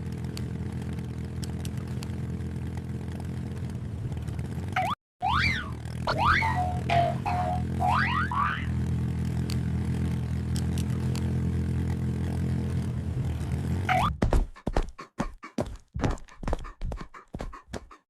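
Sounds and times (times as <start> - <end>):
low hum: 0.0 - 14.1
quick thumps: 14.0 - 18.0.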